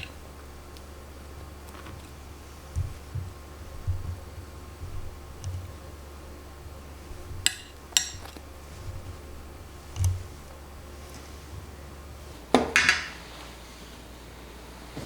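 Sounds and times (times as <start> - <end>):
kitchenware clinks: 12.5 - 13.3
dishes clattering: 12.5 - 13.5.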